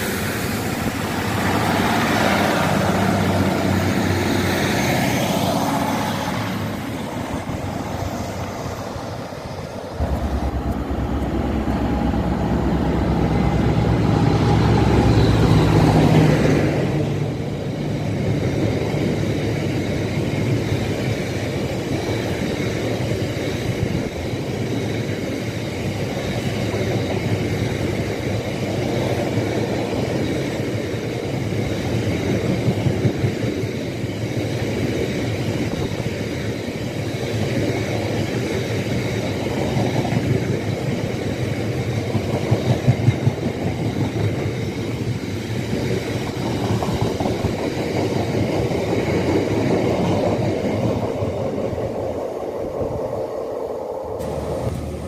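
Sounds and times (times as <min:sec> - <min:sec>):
diesel locomotive engine: 0:00.0 - 0:55.0
train wheels rolling on rails: 0:00.0 - 0:55.0.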